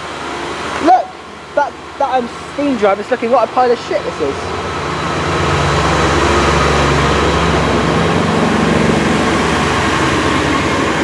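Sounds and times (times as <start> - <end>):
diesel train engine idling: 0.0 - 11.0
higher engine tone: 0.0 - 11.0.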